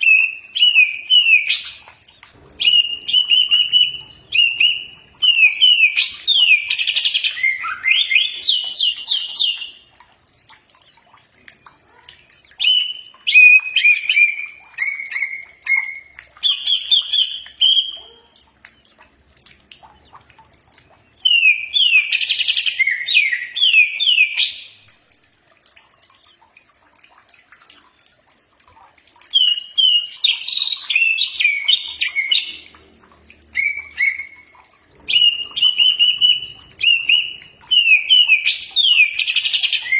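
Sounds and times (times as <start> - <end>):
bird singing chirps and whistles: 0.0 - 1.9, 2.6 - 9.8, 12.6 - 18.0, 21.2 - 24.9, 29.3 - 32.6, 33.5 - 34.5, 35.1 - 39.9.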